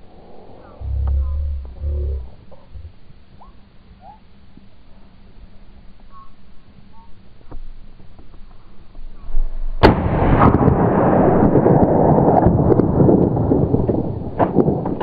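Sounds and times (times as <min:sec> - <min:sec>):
loud rough continuous noise: 0:00.0 - 0:11.8
rifle shot: 0:09.8 - 0:13.1.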